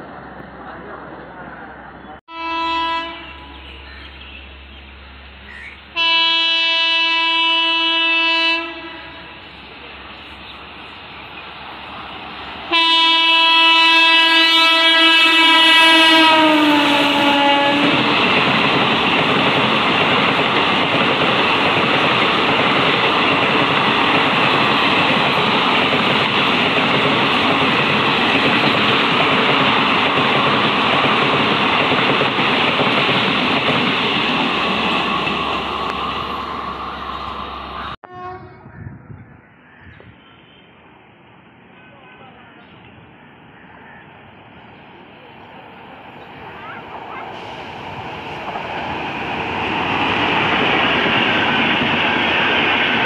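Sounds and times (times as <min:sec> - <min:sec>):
train rushing past: 0:00.0 - 0:39.4, 0:43.0 - 0:53.0
train horn blast: 0:02.3 - 0:04.0, 0:06.0 - 0:09.4, 0:12.7 - 0:18.2, 0:37.8 - 0:38.8.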